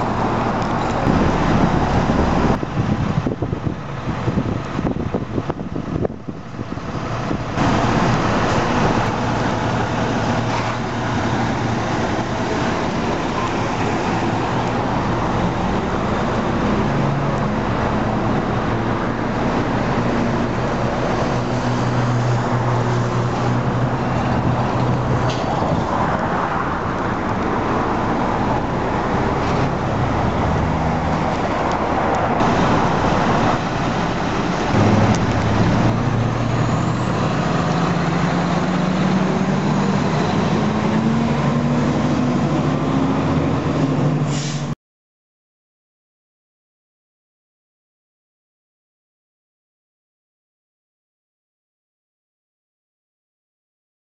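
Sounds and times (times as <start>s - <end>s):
road traffic noise: 0.0s - 44.8s
vehicle engine running: 31.2s - 40.1s.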